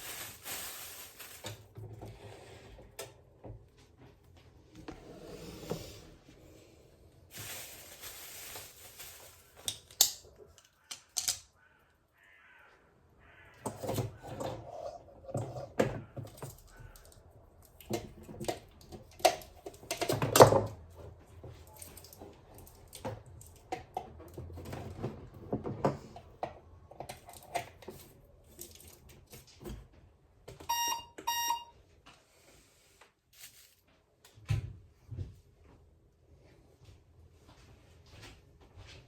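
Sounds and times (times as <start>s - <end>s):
appliance beeping: 30.6s - 31.8s.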